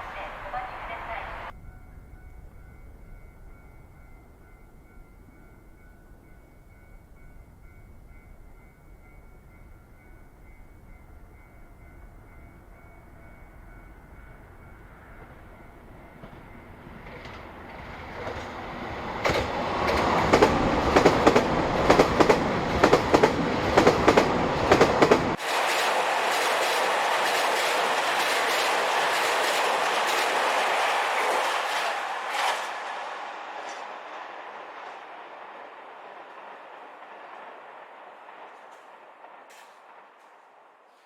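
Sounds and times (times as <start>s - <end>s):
train rushing noise: 0.0s - 1.5s, 14.8s - 41.0s
train passing at speed: 0.0s - 41.0s
wheels beating over rail joints: 15.2s - 41.0s.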